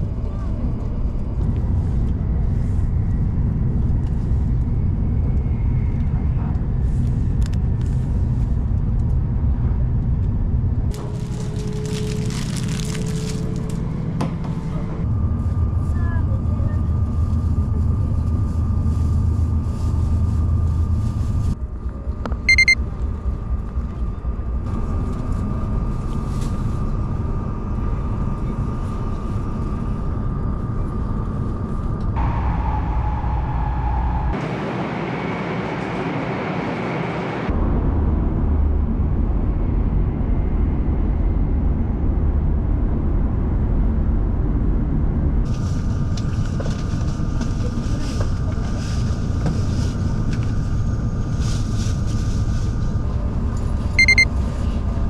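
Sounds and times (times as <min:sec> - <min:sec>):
train rumble inside carriage: 0:00.0 - 0:55.0
high-pitched tone: 0:22.5 - 0:22.8, 0:54.0 - 0:54.2.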